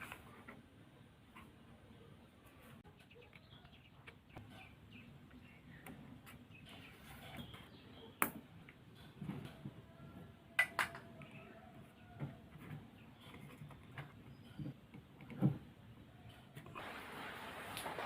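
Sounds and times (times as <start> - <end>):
small objects knocking and clicking: 10.6 - 11.4.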